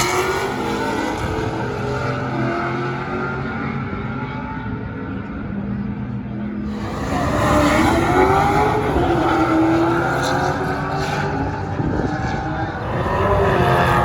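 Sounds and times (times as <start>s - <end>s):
car engine revving high: 0.0s - 4.0s, 6.6s - 14.0s.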